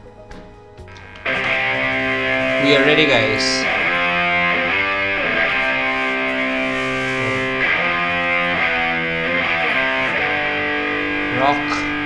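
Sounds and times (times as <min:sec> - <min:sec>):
distorted electric guitar chords: 0:00.4 - 0:12.0.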